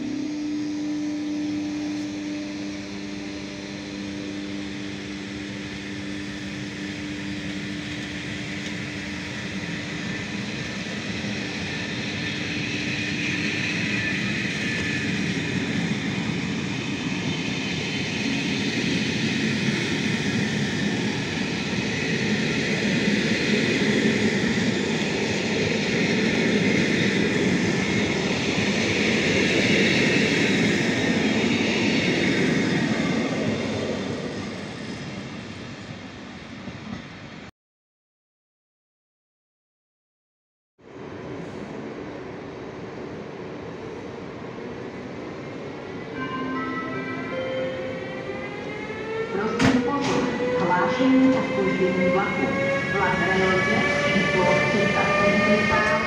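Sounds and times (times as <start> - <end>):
locomotive electrical hum: 0.0 - 11.7.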